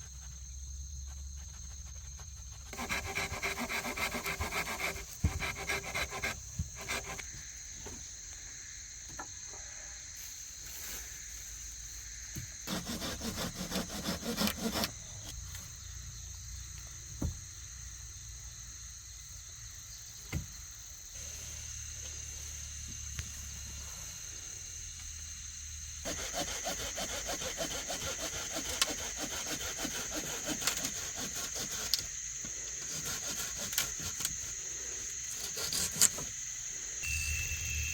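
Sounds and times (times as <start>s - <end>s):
high insect drone: 0.0s - 37.9s
hand tool strokes on wood: 2.7s - 7.4s, 12.6s - 15.3s, 26.0s - 34.6s.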